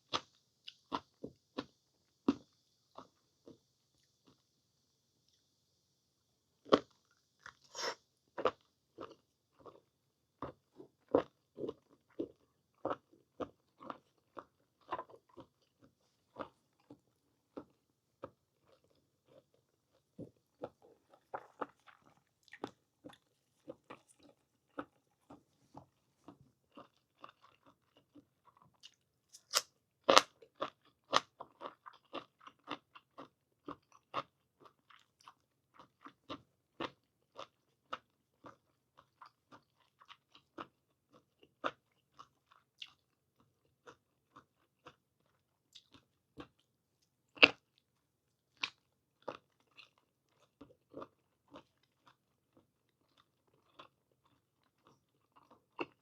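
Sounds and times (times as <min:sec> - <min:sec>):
chewing and biting mouth sounds: 0:06.7 - 0:46.7, 0:48.5 - 0:56.0.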